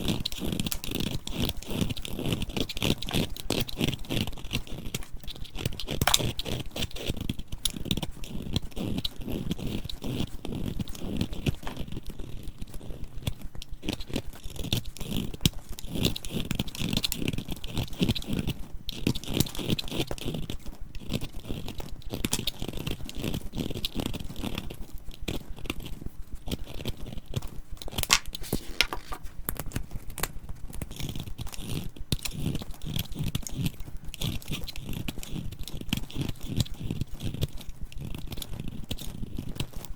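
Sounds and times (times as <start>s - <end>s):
dried soap crunching: 2.0s - 7.2s, 25.6s - 39.8s.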